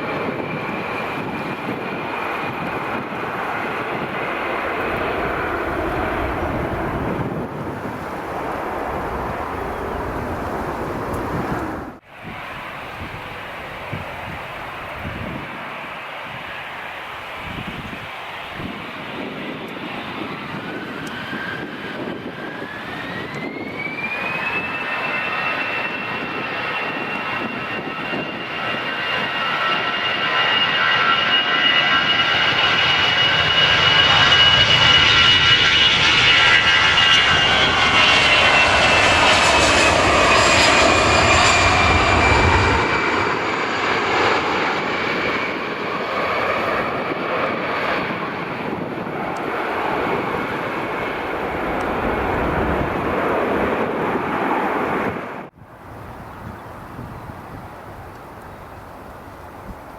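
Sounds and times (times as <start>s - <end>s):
deep jet rumble: 0.0s - 59.9s
jet engines whining: 0.0s - 59.9s.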